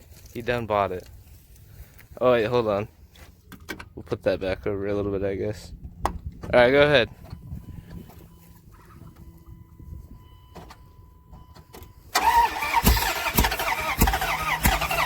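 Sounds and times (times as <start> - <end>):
engine cranking without firing: 10.5 - 15.0.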